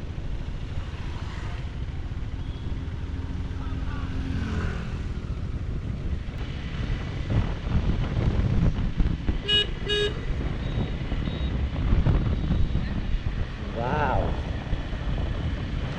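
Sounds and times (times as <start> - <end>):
motorcycle engine rumble: 0.0 - 15.9
vehicle horn beeps: 2.4 - 2.8, 9.4 - 11.6
wind rush on microphone: 4.5 - 15.9.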